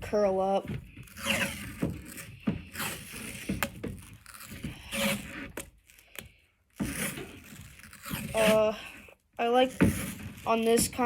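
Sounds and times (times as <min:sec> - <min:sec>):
hand rubbing tape: 0:00.6 - 0:11.0
tape peeling off a roll: 0:00.7 - 0:11.0.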